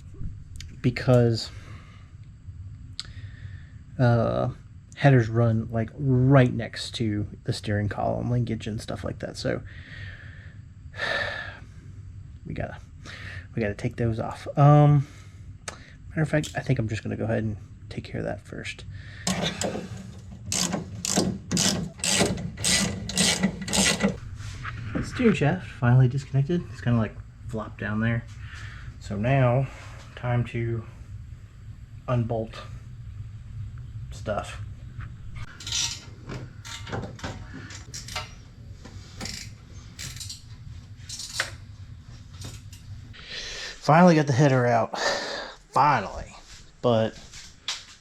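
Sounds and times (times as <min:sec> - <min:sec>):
steady low hum: 0:00.0 - 0:47.8
socket ratchet clicking: 0:19.3 - 0:24.2, 0:35.5 - 0:37.0, 0:37.8 - 0:38.4, 0:39.2 - 0:40.5
wrench clanking on metal: 0:19.3 - 0:24.2, 0:35.5 - 0:38.5, 0:39.2 - 0:40.5, 0:41.1 - 0:41.6.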